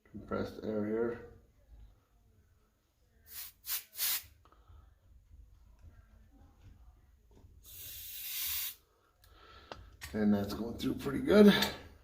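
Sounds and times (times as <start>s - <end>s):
compressed air blasts: 3.3s - 4.4s, 7.6s - 8.9s.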